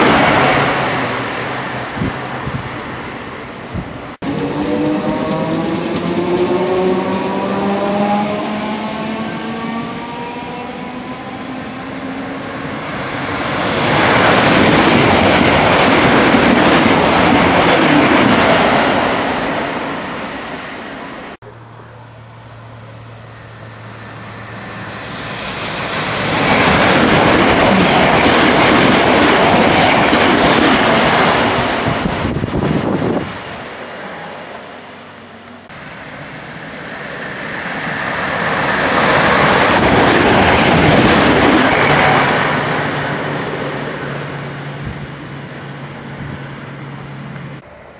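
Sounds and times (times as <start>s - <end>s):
trains rushing past: 0.0s - 47.9s
electric train motor whine: 21.5s - 27.6s.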